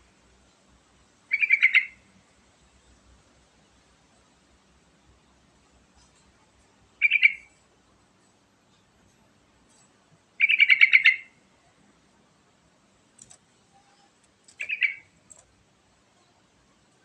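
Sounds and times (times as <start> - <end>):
bulbul singing warbled phrases: 10.4 - 11.4, 14.6 - 15.2.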